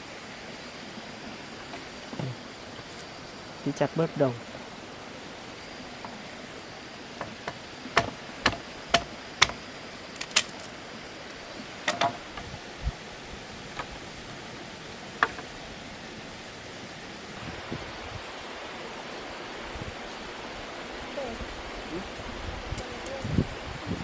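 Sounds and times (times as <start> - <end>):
blade chopping wooden stakes: 7.2 - 9.6, 10.2 - 10.7.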